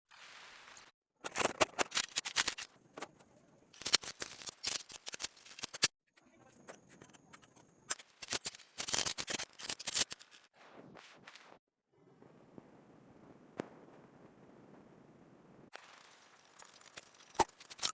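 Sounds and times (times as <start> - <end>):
hand tool clicking and scraping: 1.2 - 3.2, 3.8 - 5.9, 7.9 - 10.4.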